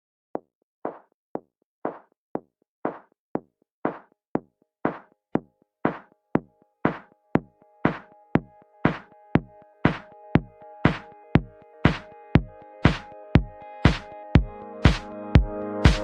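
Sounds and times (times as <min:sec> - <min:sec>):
drum machine kicks and claps: 0:00.4 - 0:16.0
sustained synth chords: 0:07.2 - 0:16.0.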